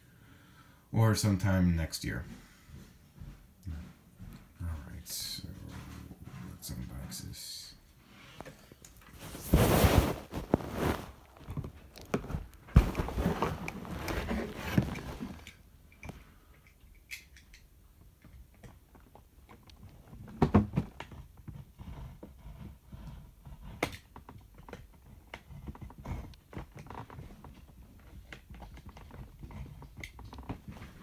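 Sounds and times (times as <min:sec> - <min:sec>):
packaging rustling: 0:09.0 - 0:15.6.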